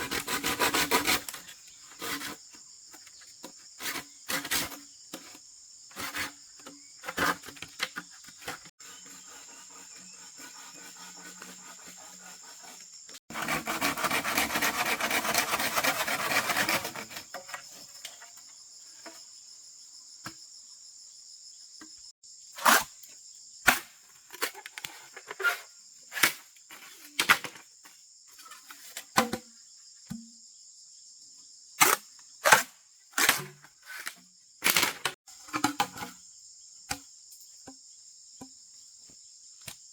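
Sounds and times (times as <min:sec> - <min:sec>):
crickets chirring: 0:15.4 - 0:39.9.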